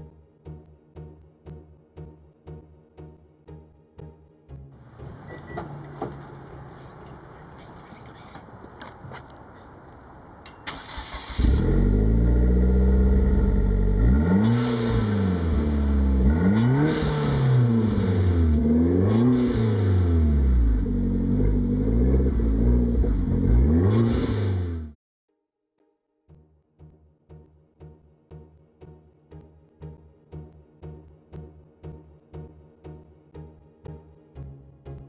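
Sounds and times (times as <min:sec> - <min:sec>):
car engine starting and revving: 0:04.8 - 0:08.5, 0:09.4 - 0:25.0.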